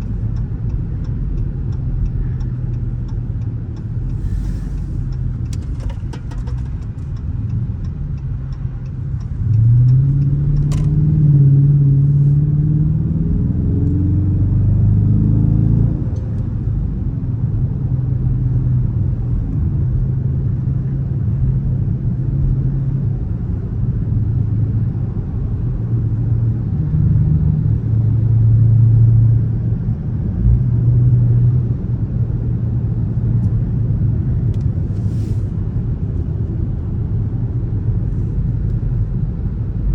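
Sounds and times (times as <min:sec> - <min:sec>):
light ticks: 0:00.0 - 0:11.0
car engine accelerating hard: 0:00.0 - 0:21.0.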